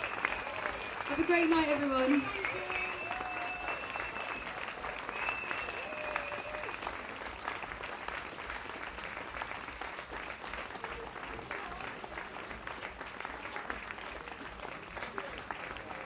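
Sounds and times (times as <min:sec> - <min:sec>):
voices in crowd: 0:00.0 - 0:07.2, 0:10.5 - 0:16.0
audience applauding: 0:00.0 - 0:16.0.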